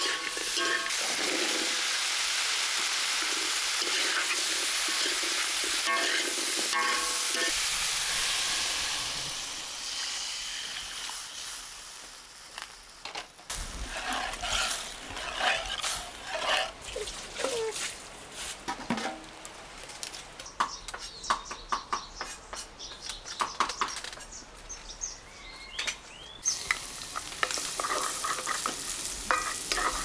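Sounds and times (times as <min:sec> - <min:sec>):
water pouring into wok: 0:00.0 - 0:05.8
food sizzling in a wok: 0:00.0 - 0:17.0, 0:26.4 - 0:30.0.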